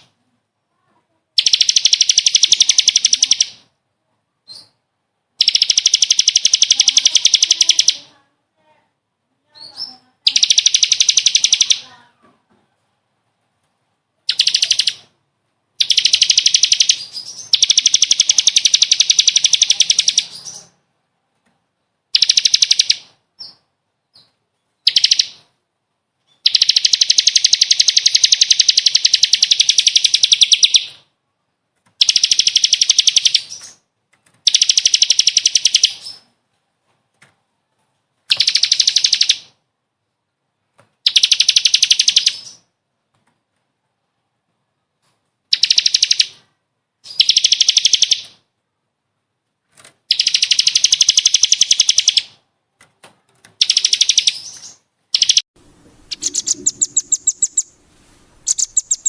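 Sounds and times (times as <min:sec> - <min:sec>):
songbird trilling: 0:01.4 - 0:03.6, 0:05.4 - 0:08.1, 0:09.7 - 0:12.0, 0:14.3 - 0:15.0, 0:15.8 - 0:20.6, 0:24.9 - 0:25.4, 0:34.5 - 0:36.1, 0:38.3 - 0:39.4, 0:47.1 - 0:48.2, 0:50.1 - 0:52.3, 0:53.6 - 0:57.8, 0:58.4 - 0:59.0.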